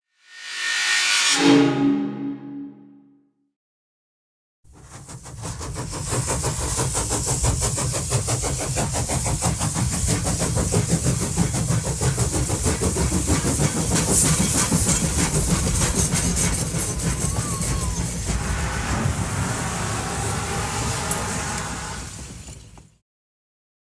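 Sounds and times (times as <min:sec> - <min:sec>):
train hiss: 0:04.7 - 0:22.8
train clattering: 0:04.8 - 0:23.0.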